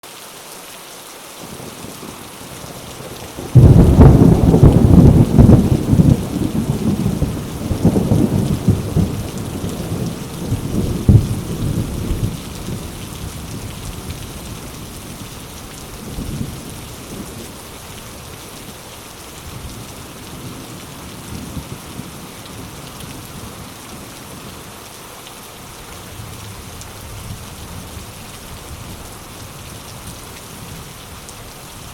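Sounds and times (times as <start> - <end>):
heavy rain on leaves: 0.0 - 31.9
thunder clap: 3.5 - 12.8.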